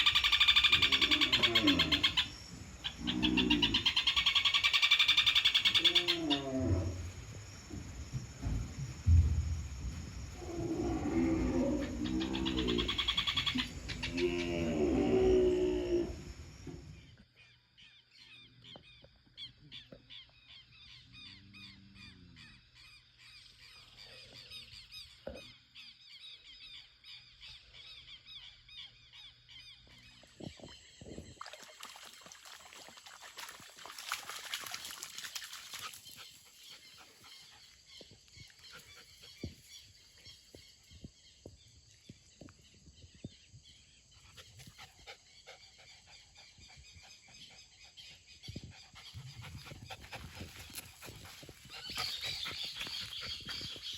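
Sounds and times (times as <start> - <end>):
knocks and rustles: 7.1 - 10.4.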